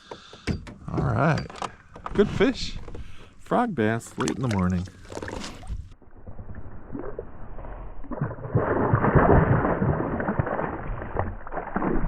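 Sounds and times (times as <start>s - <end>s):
water sloshing and gurgling: 1.9s - 12.0s.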